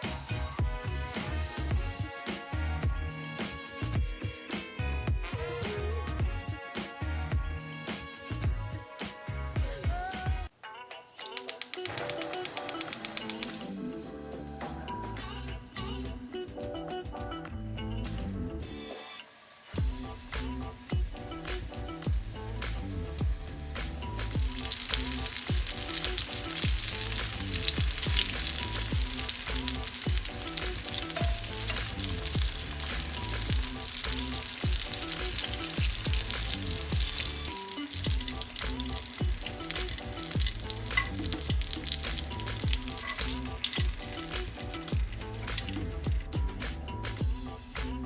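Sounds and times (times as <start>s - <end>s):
food deep-frying in oil: 11.3s - 13.7s, 18.7s - 47.4s.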